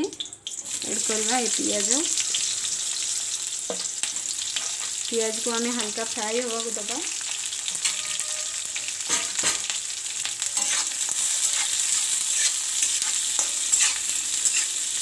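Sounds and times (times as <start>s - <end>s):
onions sizzling in hot oil: 0.0s - 15.0s
spatula scraping pan: 7.7s - 9.7s, 10.4s - 15.0s.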